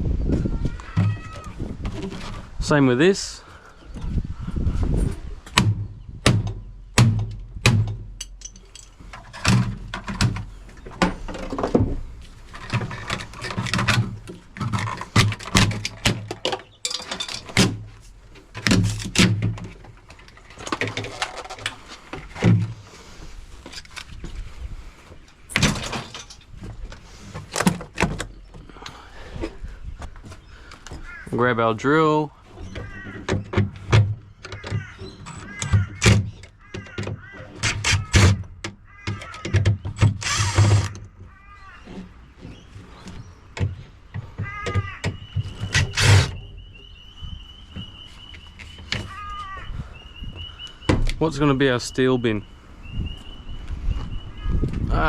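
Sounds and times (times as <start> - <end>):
fridge panels knocking and rattling: 43.6 - 45.8.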